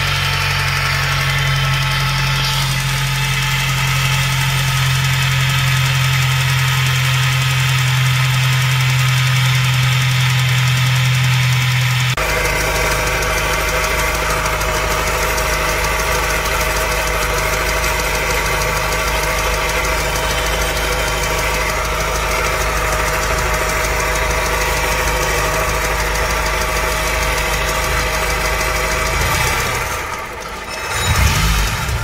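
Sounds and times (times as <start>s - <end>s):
car engine idling with knock: 0.0s - 32.0s.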